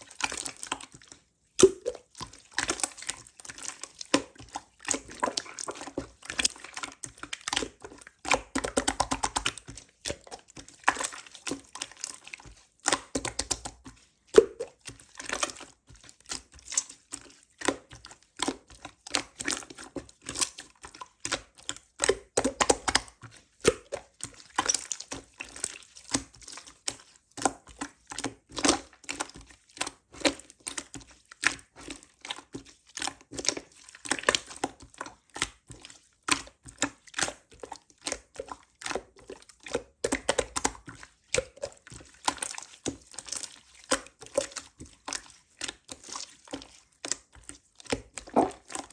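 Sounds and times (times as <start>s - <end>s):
slime squished by hand: 47.9s - 48.9s.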